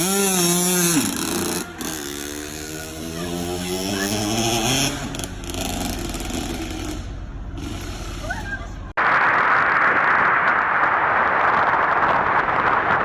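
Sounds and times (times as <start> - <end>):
motorcycle engine accelerating: 0.0 - 8.9.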